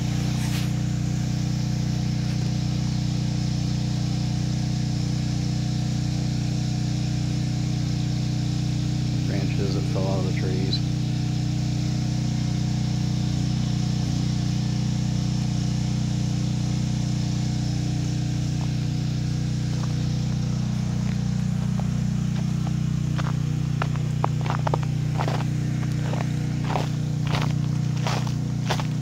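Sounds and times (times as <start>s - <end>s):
sharp crunches: 0.0s - 0.9s, 18.5s - 29.0s
generator engine running: 0.0s - 29.0s.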